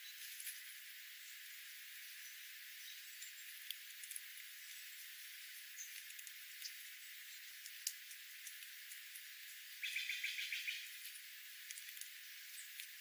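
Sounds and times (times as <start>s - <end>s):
steady high hiss: 0.0s - 13.0s
small bird chirping: 1.2s - 13.0s
faint ticks: 3.2s - 6.9s, 7.5s - 13.0s.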